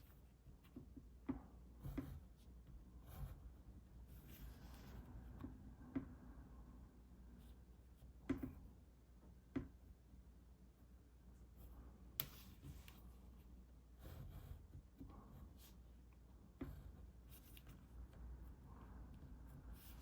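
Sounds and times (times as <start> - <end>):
pencil scratching on paper: 1.8 - 5.4, 14.0 - 15.8, 16.6 - 20.0.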